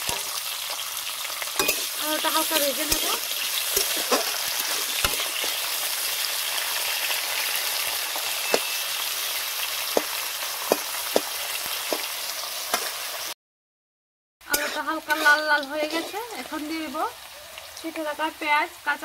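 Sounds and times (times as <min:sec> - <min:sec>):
metal spatula scraping pan: 0:00.0 - 0:00.4, 0:01.6 - 0:09.4, 0:14.5 - 0:16.8
potato slices sizzling in oil: 0:00.0 - 0:13.4, 0:14.4 - 0:19.0.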